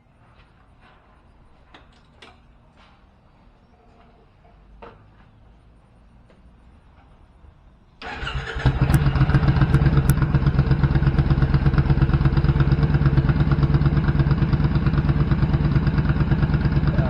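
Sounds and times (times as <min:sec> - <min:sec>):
motorcycle engine idling: 0:08.7 - 0:17.0.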